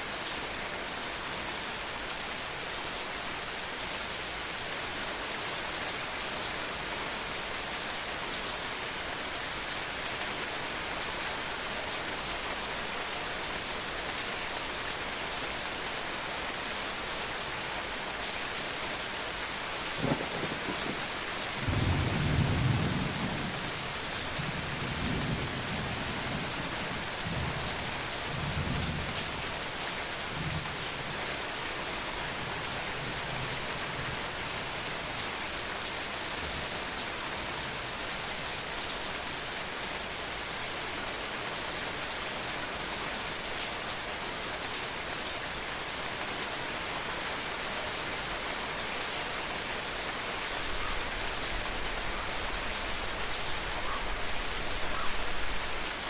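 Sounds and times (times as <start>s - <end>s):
steady rain falling: 0.0s - 56.0s
thunder rumbling: 20.0s - 23.5s.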